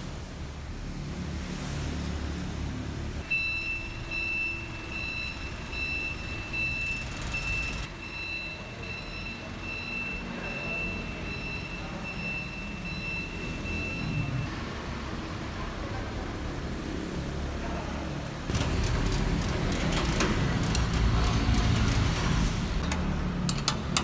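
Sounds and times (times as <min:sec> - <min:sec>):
back-up alarm beeping: 0:03.2 - 0:14.5.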